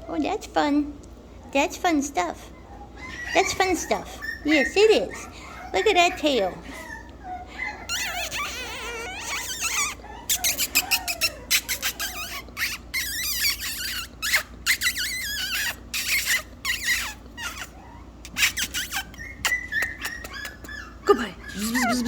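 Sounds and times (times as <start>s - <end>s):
puppy squealing and whining: 2.5s - 22.0s
quick sharp clicks and taps: 19.4s - 20.8s.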